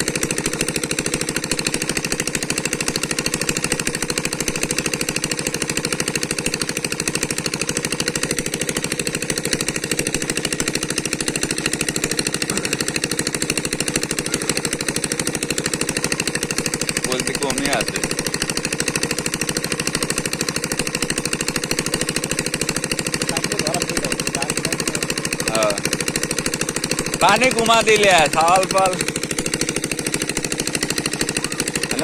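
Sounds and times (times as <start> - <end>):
small engine thumping: 0.0 - 32.0.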